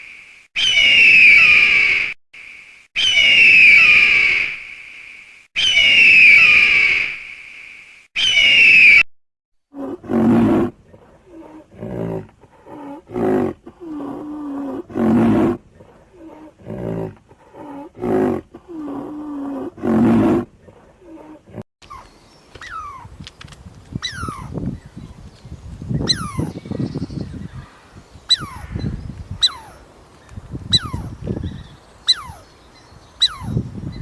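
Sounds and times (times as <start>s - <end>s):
lion grunting: 9.7s - 21.6s
lion roaring: 9.7s - 21.6s.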